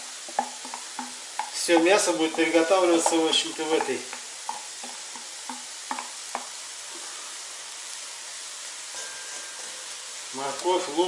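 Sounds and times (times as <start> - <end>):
meat and vegetables sizzling: 0.0 - 11.0
wooden spatula knocking and scraping: 0.2 - 6.6.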